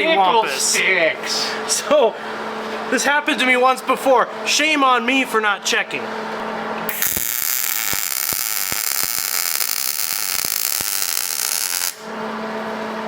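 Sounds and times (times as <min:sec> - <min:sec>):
arc welder hissing and popping: 0:06.9 - 0:12.1.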